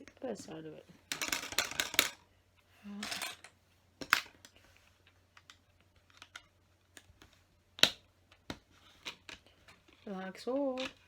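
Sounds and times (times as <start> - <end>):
plastic toy bricks clicking: 1.1 - 2.2, 10.8 - 11.0.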